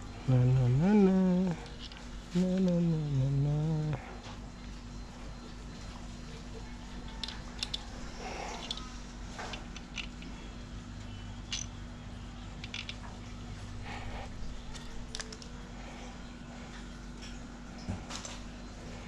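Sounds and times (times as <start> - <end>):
steady low hum: 0.0 - 19.0
hand tools clicking and tapping: 7.1 - 7.9, 8.5 - 10.3.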